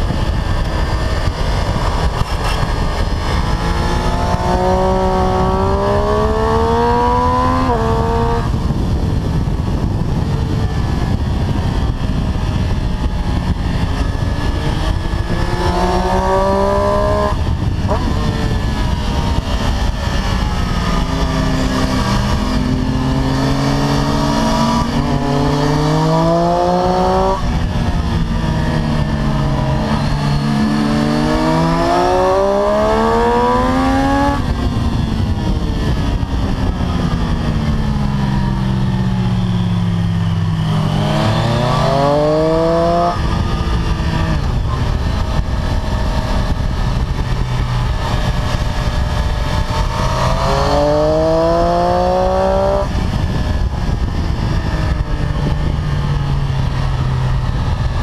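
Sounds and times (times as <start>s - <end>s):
motorcycle engine at speed: 0.0s - 58.0s
wind rush: 0.0s - 58.0s.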